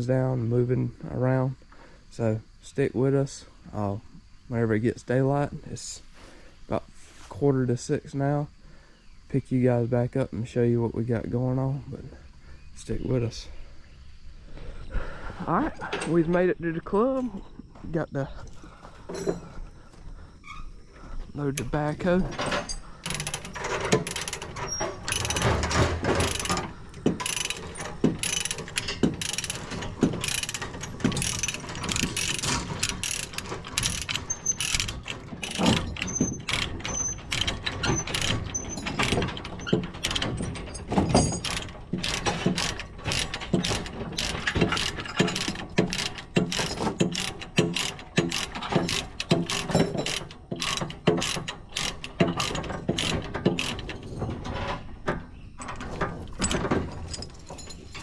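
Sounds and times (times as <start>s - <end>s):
metal chains clanking: 15.5s - 19.8s, 21.4s - 58.0s
rapid ratcheting clicks: 23.0s - 54.2s.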